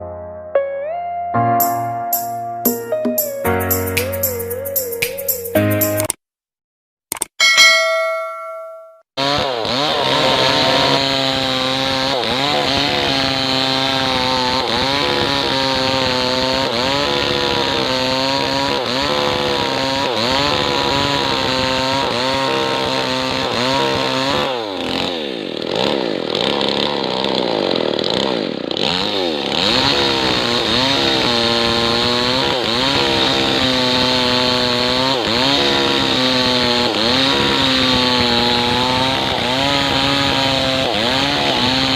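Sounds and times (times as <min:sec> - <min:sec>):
chime: 0:07.4 - 0:09.0
chainsaw cutting log: 0:09.2 - 0:41.9.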